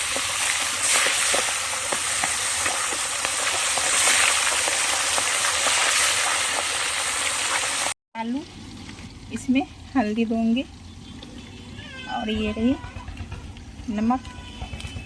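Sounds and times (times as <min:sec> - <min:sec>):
fish sizzling in hot oil: 0:00.0 - 0:11.1.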